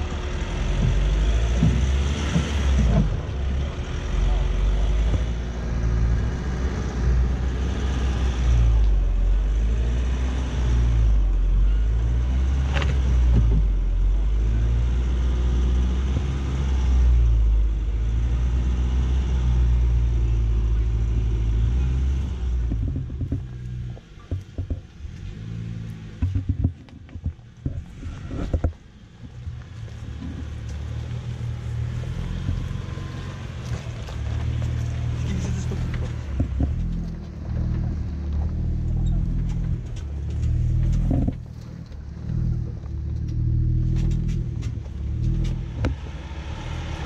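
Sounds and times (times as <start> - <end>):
knocks and bumps: 0.0 - 3.6, 21.1 - 46.2
engine rumbling under load: 0.0 - 47.0.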